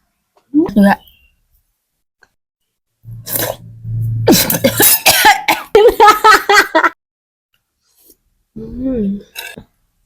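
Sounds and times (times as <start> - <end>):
person coughing: 4.3 - 5.9.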